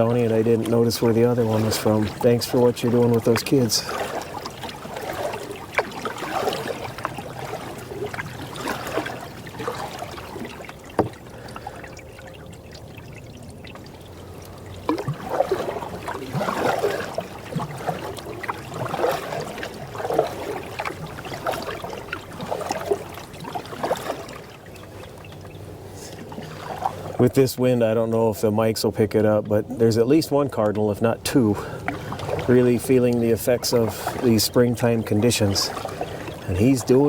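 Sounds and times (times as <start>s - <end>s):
water dripping: 0.0s - 27.7s
canoe paddle splashing water: 0.0s - 37.0s.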